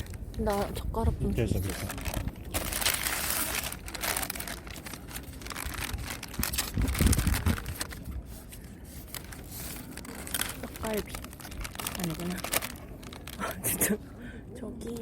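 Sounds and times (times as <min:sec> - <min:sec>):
food packaging crinkling: 0:01.6 - 0:13.9
low rumble: 0:05.1 - 0:08.2.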